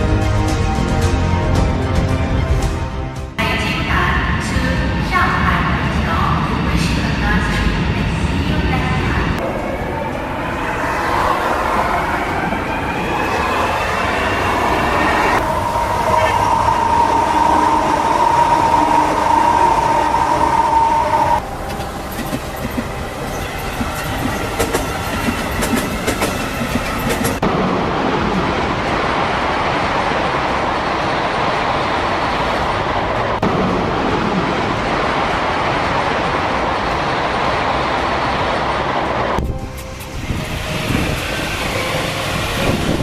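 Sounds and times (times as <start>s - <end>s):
train rushing noise: 0.0s - 43.0s
train whine: 0.0s - 43.0s.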